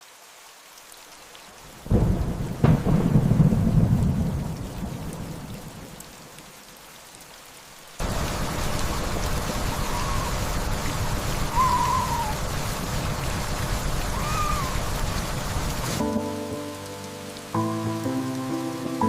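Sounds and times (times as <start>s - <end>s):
steady rain: 0.0s - 19.0s
thunder rumble: 1.8s - 6.2s, 8.0s - 16.1s
thunder crack: 1.9s - 5.9s.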